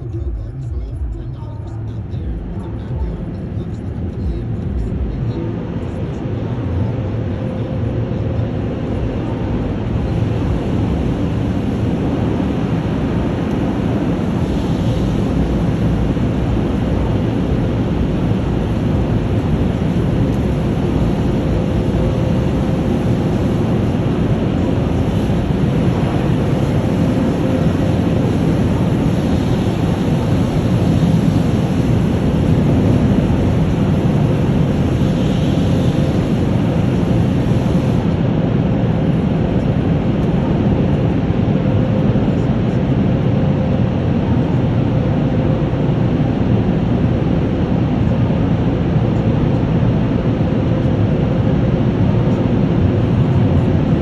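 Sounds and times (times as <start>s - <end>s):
car wash machinery rushing: 8.9s - 38.2s.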